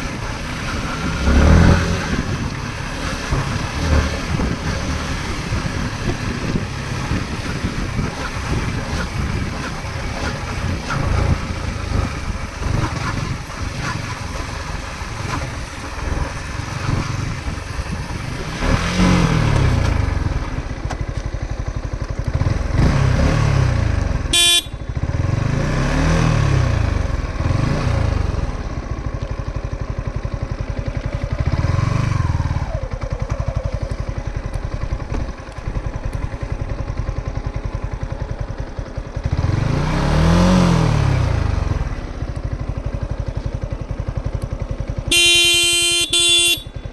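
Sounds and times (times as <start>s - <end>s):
vehicle engine speeding up and slowing: 0.0s - 21.0s, 22.2s - 29.3s, 38.6s - 44.5s.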